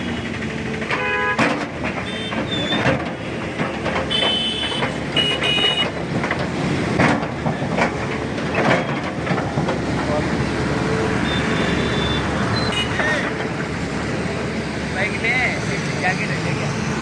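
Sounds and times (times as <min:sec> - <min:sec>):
road traffic noise: 0:00.0 - 0:17.0
car horn toot: 0:00.9 - 0:02.4, 0:04.1 - 0:05.9, 0:11.3 - 0:13.2.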